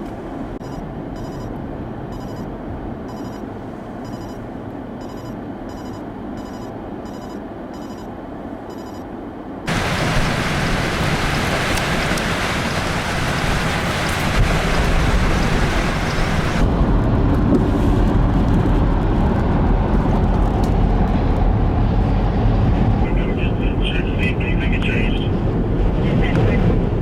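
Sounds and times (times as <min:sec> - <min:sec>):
wind rumbling on microphone: 0:09.3 - 0:27.0
strong wind rushing hiss: 0:09.7 - 0:23.0.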